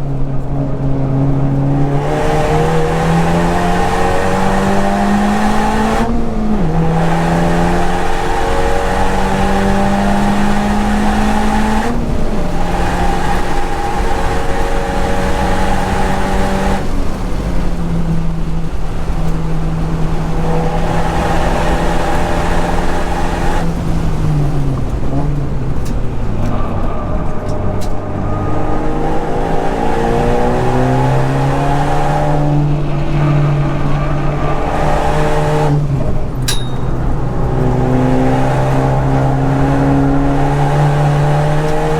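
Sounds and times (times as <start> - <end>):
car engine accelerating hard: 0.0 - 41.9.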